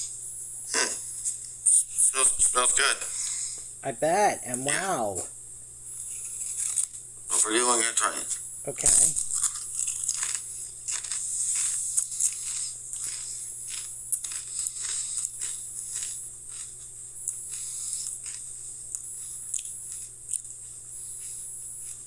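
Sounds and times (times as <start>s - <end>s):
crisps being bitten and chewed: 6.1s - 7.0s, 9.2s - 22.0s.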